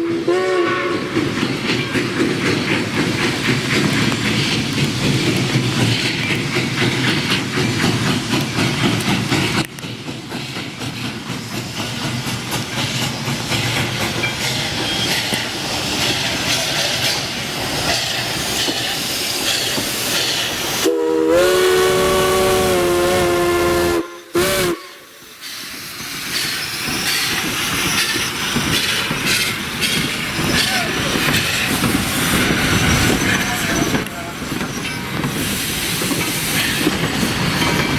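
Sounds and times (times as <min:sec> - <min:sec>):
steam locomotive chime whistle: 0:00.0 - 0:01.1, 0:20.8 - 0:25.2
train running: 0:00.0 - 0:37.9.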